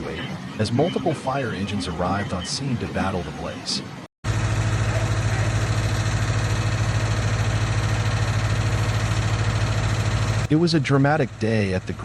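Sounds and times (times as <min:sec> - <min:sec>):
engine idling: 0:04.3 - 0:12.0.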